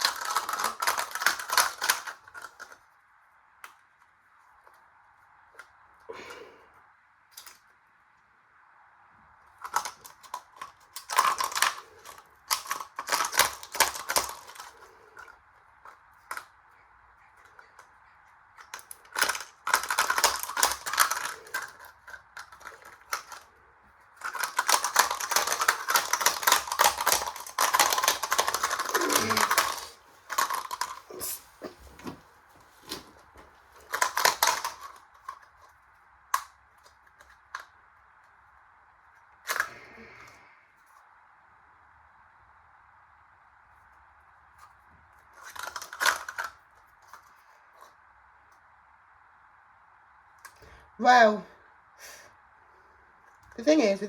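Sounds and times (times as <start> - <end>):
washing machine motor whine: 28.8 - 30.3.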